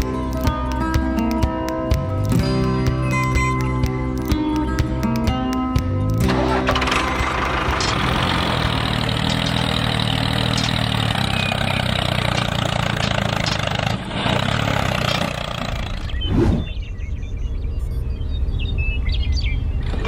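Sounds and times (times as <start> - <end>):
small engine running: 6.2 - 16.2.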